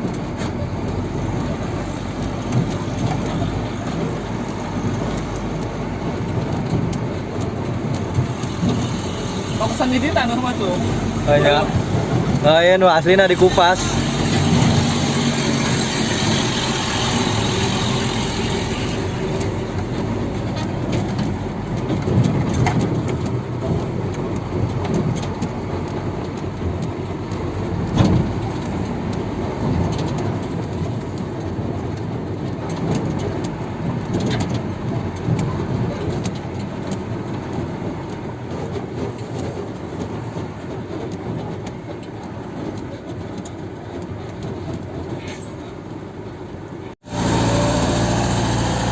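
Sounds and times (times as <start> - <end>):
diesel machinery rumbling: 0.0 - 48.9
knocks and clanks: 10.3 - 45.3.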